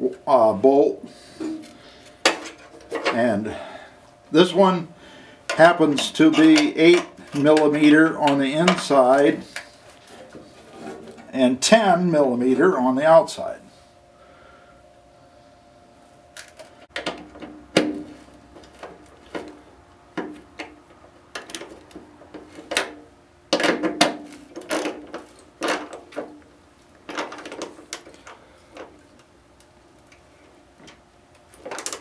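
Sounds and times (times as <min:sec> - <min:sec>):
hand tools clicking on metal: 0:05.5 - 0:09.7.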